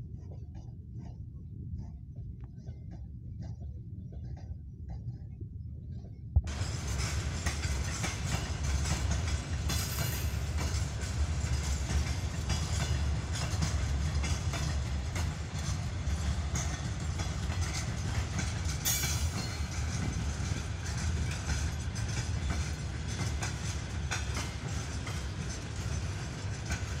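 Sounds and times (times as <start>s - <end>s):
freight train wheels rumbling: 5.9s - 27.0s
wheels clicking over rail joints: 6.5s - 27.0s.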